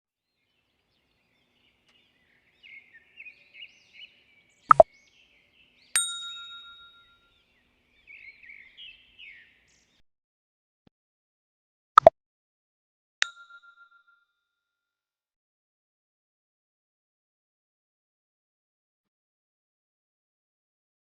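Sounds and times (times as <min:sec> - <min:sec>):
soft high bird-like chirps: 0:01.0 - 0:10.0
bell-like ding: 0:06.0 - 0:07.2, 0:13.2 - 0:14.3.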